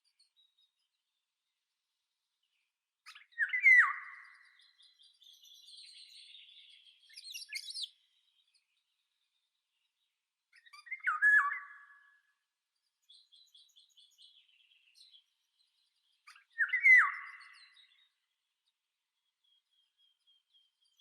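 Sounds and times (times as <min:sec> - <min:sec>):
high bird chirps: 0:03.1 - 0:08.0
bird whistled calls: 0:03.3 - 0:04.4, 0:07.1 - 0:07.9, 0:10.8 - 0:12.0, 0:16.6 - 0:17.6.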